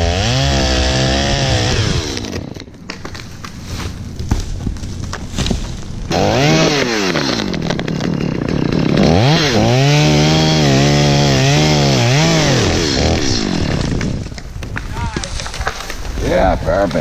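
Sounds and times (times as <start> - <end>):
chainsaw engine revving: 0.0 - 2.6, 6.1 - 14.3.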